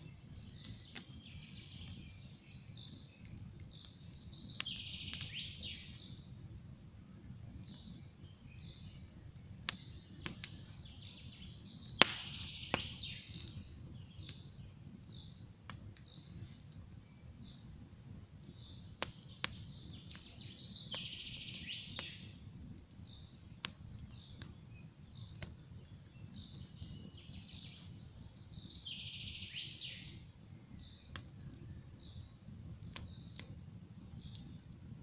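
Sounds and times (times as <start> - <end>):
campfire crackling and popping: 0.0 - 35.0
birds chirping: 0.1 - 6.4, 7.6 - 16.6, 18.5 - 31.2.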